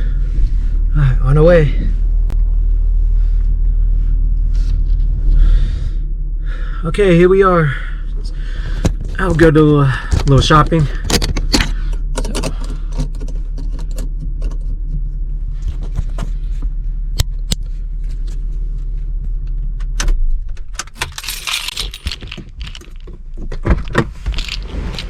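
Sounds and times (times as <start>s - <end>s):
car engine idling: 0.0s - 25.0s
keys jangling: 20.8s - 23.1s, 24.3s - 25.0s.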